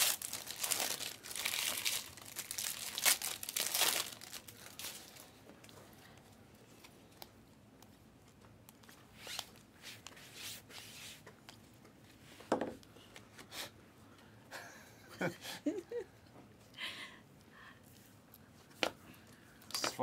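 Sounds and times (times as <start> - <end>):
trading cards rustling and sliding: 8.8 - 12.4.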